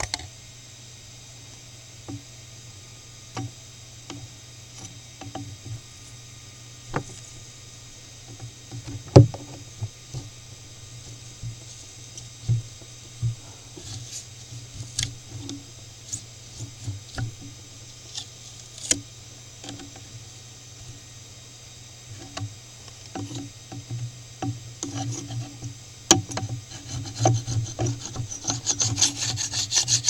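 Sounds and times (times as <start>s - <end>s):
mill spindle hum and whine: 0.0s - 30.0s
end mill cutting circuit board: 26.7s - 30.0s.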